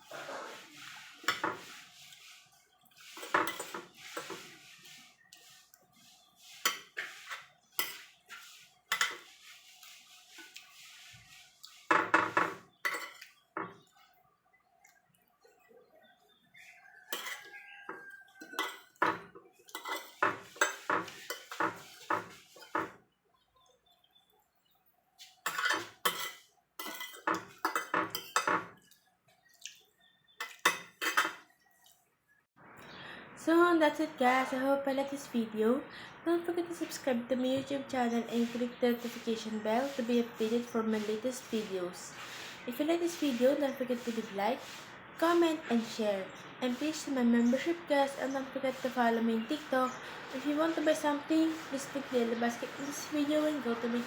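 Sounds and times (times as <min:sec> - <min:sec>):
cutlery clinking on a plate: 0:03.2 - 0:04.4, 0:08.9 - 0:09.2, 0:11.9 - 0:13.7, 0:17.1 - 0:23.0, 0:25.5 - 0:28.8, 0:30.4 - 0:31.5.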